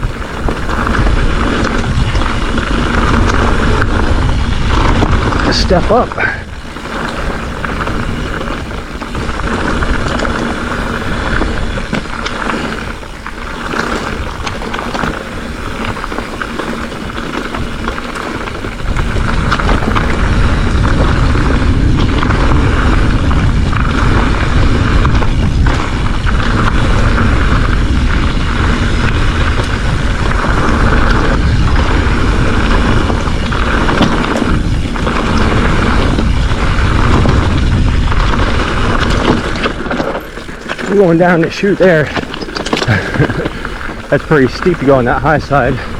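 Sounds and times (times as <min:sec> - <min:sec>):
bike tyre noise: 0:00.0 - 0:45.9
wind buffeting microphone: 0:00.0 - 0:45.9
bike frame knocks and rattles: 0:06.8 - 0:44.6.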